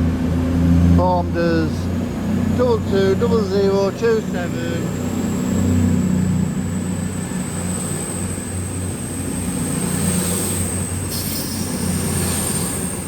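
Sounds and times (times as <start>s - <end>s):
train engine drone: 0.0s - 13.0s
thin high whine: 4.0s - 13.0s.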